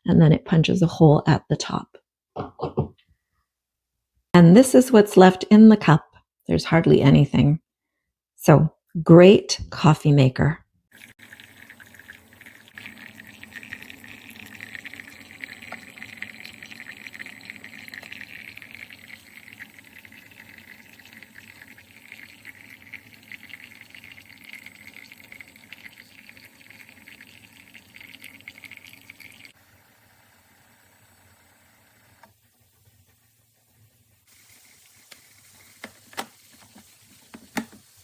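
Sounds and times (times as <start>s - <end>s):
coffee trickling into cup: 11.0s - 32.4s, 34.3s - 38.0s
hot water sputtering: 11.0s - 38.0s.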